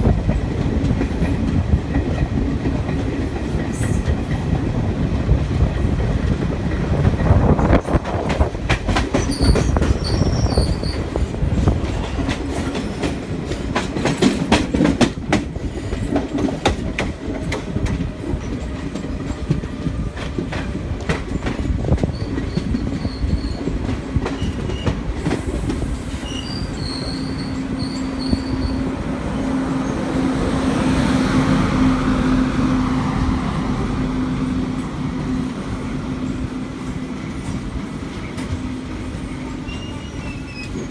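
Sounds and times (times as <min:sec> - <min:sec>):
wheels clicking over rail joints: 0:00.0 - 0:27.9
train wheels rumbling on rails: 0:00.0 - 0:40.9.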